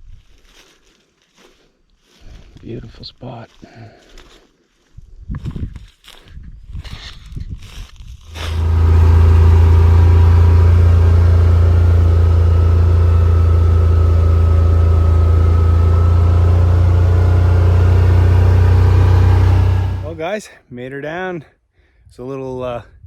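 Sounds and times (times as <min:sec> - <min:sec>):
utility vehicle engine humming: 0:08.3 - 0:20.2.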